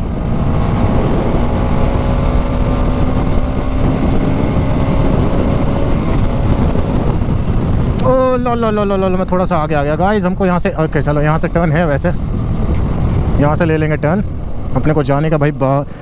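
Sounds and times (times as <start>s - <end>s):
motorcycle engine at high revs: 0.0s - 8.0s
wind rush on microphone: 0.0s - 16.0s.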